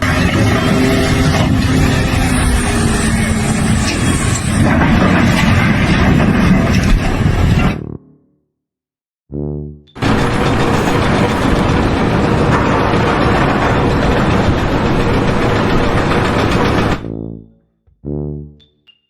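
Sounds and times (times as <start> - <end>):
heavy machine running: 0.0 - 7.8, 10.0 - 17.2.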